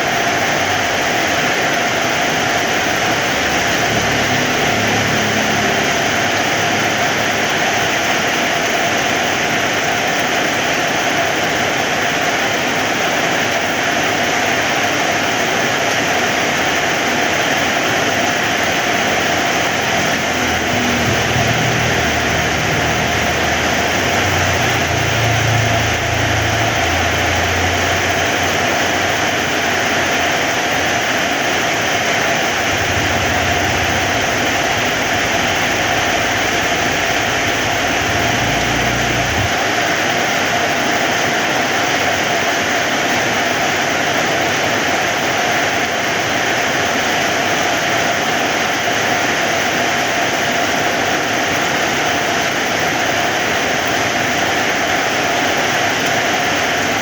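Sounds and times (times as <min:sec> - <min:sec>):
heavy rain falling: 0:00.0 - 0:57.0
low rumble: 0:18.4 - 0:29.5, 0:32.5 - 0:40.0.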